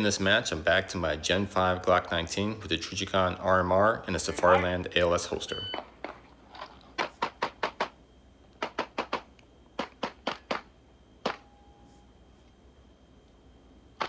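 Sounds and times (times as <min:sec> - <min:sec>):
pistol shots: 0:08.6 - 0:11.5.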